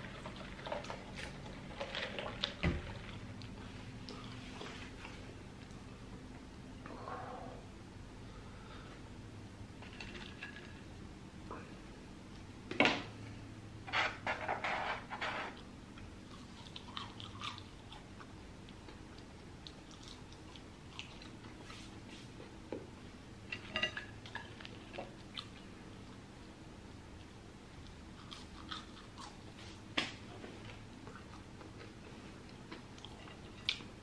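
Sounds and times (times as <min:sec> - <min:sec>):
person chewing food: 0:16.0 - 0:21.7, 0:27.8 - 0:29.8, 0:30.4 - 0:34.0.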